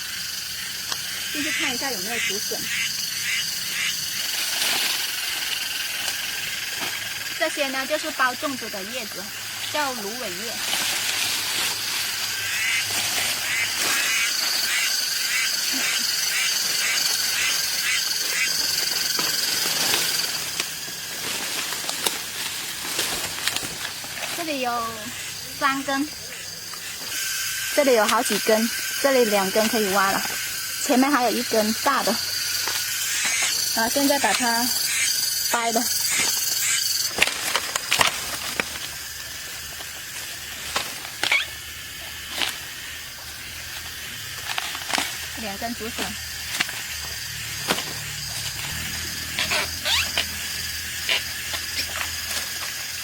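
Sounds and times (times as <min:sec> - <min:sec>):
pulsed chirping call: 0:00.0 - 0:04.4, 0:11.8 - 0:20.6, 0:24.4 - 0:37.2, 0:48.0 - 0:51.9
steady high buzz: 0:00.0 - 0:53.0
bamboo shoots snapping: 0:19.1 - 0:24.4, 0:37.0 - 0:39.0.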